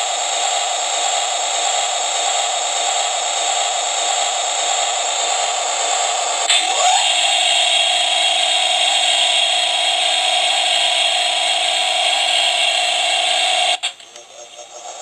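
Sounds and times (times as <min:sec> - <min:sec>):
toy power tool whirring: 0:06.4 - 0:14.0.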